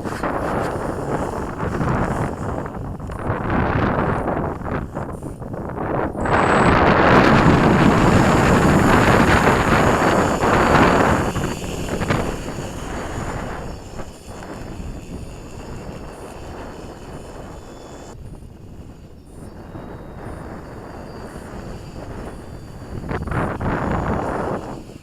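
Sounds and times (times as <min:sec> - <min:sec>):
drone propellers buzzing: 0:00.0 - 0:25.0
wind buffeting microphone: 0:00.0 - 0:25.0.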